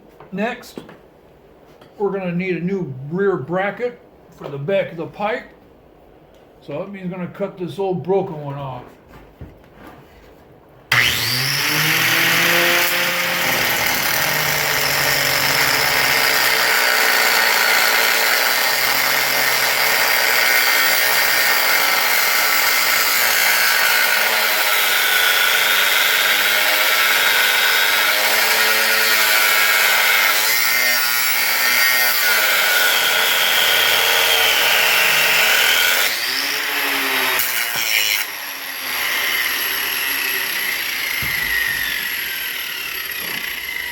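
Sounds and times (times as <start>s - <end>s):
power tool cutting metal: 10.9s - 43.9s.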